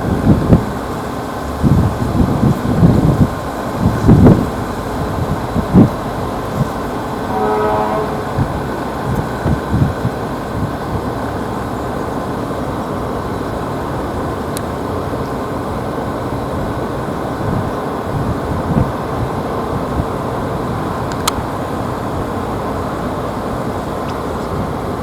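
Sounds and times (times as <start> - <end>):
wind on microphone: 0.0 - 11.8, 16.4 - 25.0
jet engines roaring: 0.0 - 25.0
short horn-like tone: 7.2 - 9.4.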